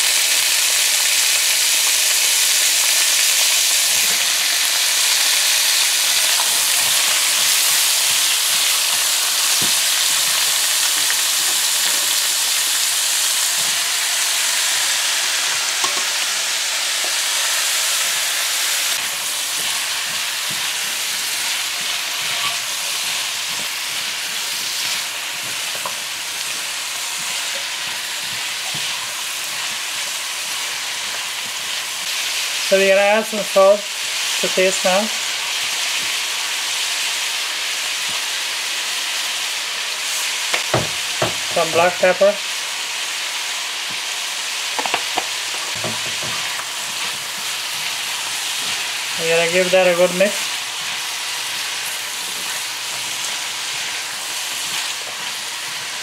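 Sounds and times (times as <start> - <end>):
pumpkin sizzling in hot oil: 0.0 - 56.0
spatula scraping and tapping a pan: 15.8 - 16.1, 19.0 - 31.6, 44.8 - 48.8.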